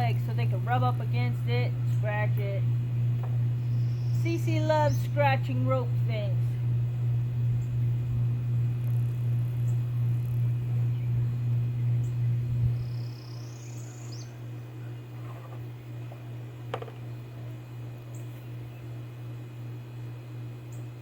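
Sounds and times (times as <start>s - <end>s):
low hum: 0.0s - 21.0s
faint high chirp: 12.8s - 14.4s.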